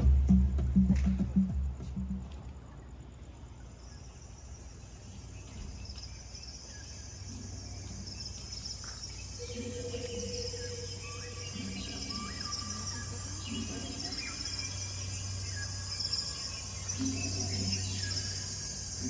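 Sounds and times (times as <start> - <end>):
insects chirring: 0.0 - 19.0
short chirping calls: 3.6 - 19.0.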